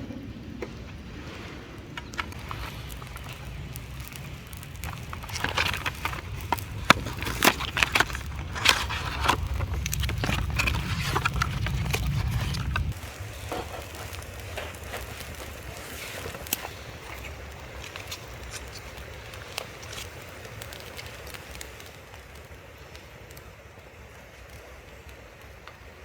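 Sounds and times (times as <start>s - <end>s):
low rumble: 0.0s - 14.5s
wood crackling and snapping: 1.8s - 26.0s.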